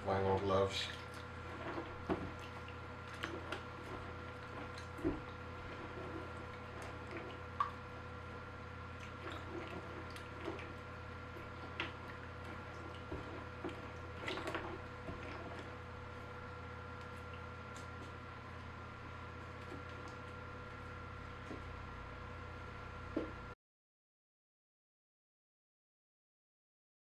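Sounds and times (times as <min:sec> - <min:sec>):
steady low hum: 0:00.0 - 0:23.6
wet mash squelching: 0:00.8 - 0:20.4.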